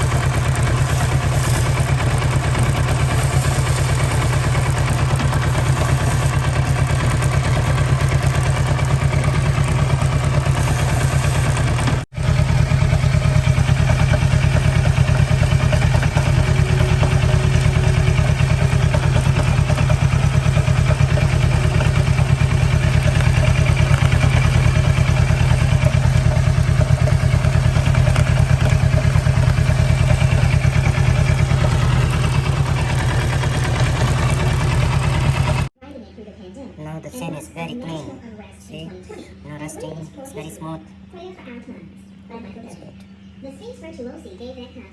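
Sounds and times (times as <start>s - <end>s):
motorcycle engine idling: 0.0s - 35.7s.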